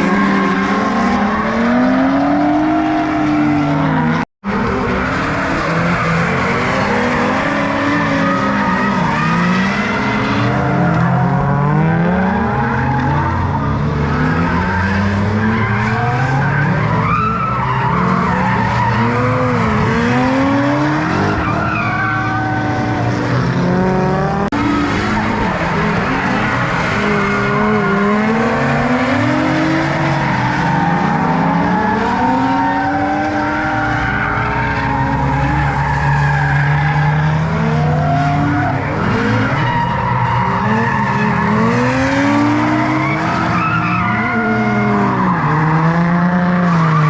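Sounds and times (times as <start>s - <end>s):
car engines revving: 0.0s - 47.0s
tyres squealing and skidding: 0.0s - 47.0s.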